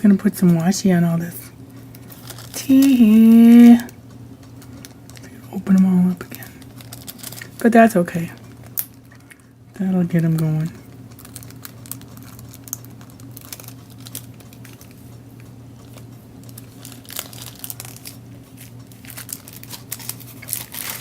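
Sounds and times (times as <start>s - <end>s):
steady low hum: 0.0s - 21.0s
cellophane and paper crinkling: 1.7s - 21.0s.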